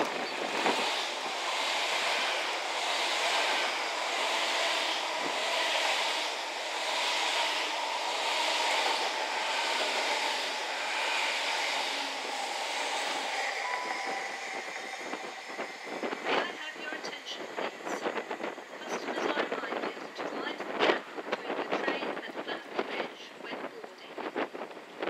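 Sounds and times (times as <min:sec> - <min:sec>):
train running past: 0:00.0 - 0:25.0.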